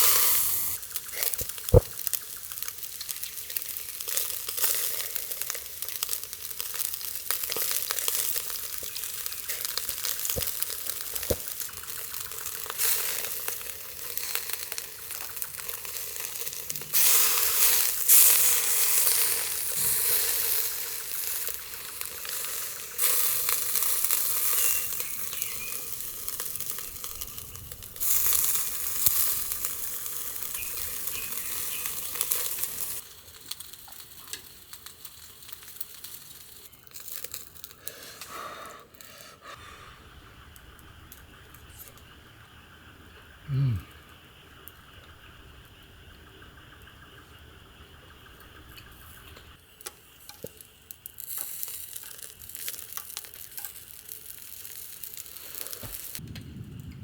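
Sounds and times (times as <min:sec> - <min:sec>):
food sizzling in a pan: 0:00.0 - 0:37.8, 0:49.6 - 0:56.2.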